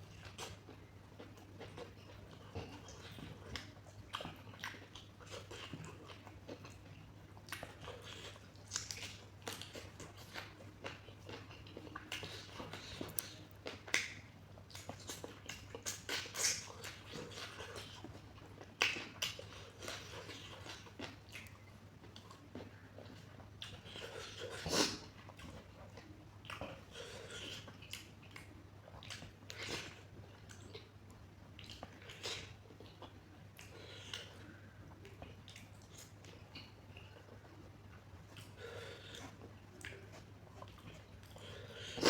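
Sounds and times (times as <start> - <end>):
wet chewing: 0.0 - 42.0
lip smacks and clicks: 8.6 - 9.8, 10.4 - 17.0, 18.6 - 21.7.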